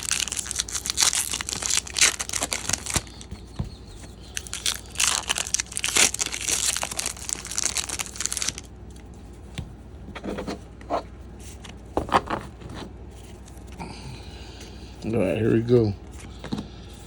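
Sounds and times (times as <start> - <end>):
plastic wrapping crinkling: 0.0 - 9.0
soft handling sounds: 8.3 - 13.8.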